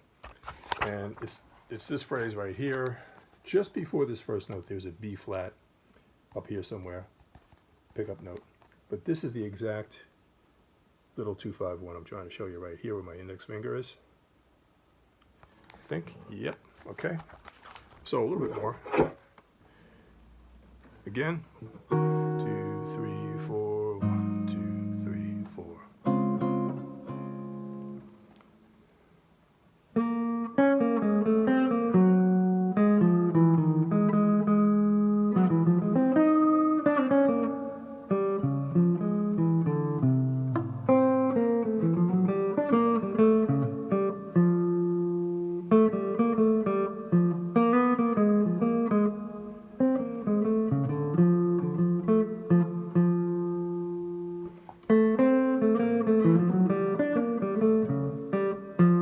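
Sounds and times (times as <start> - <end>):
guitar playing bebop: 21.2 - 28.7, 29.9 - 59.0.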